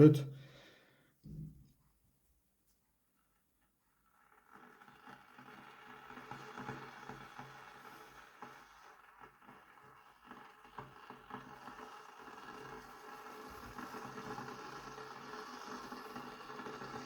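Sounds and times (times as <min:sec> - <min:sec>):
kettle water hissing and rumbling: 0:03.0 - 0:17.0.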